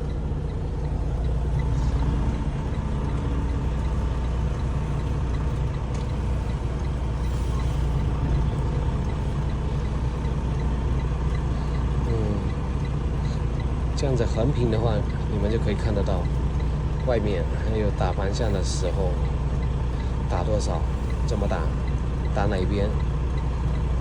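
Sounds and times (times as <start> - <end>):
faint regular ticking: 0.0 - 24.0
truck engine rumbling: 0.0 - 24.0.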